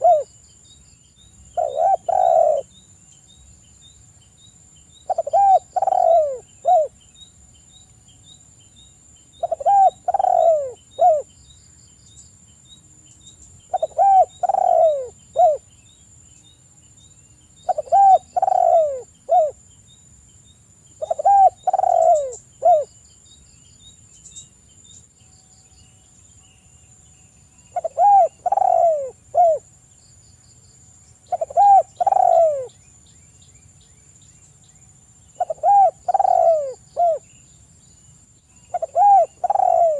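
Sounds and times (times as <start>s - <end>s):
dove cooing: 0.0s - 0.3s, 1.6s - 2.7s, 5.1s - 6.9s, 9.4s - 11.3s, 13.7s - 15.6s, 17.7s - 19.6s, 21.0s - 22.9s, 27.7s - 29.7s, 31.3s - 32.7s, 35.4s - 37.2s, 38.7s - 39.9s.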